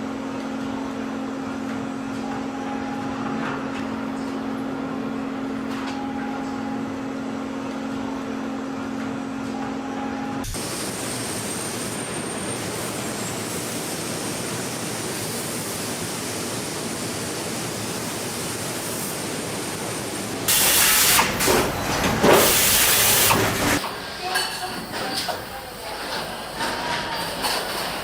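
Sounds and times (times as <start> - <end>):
machinery hissing: 10.5 - 28.0.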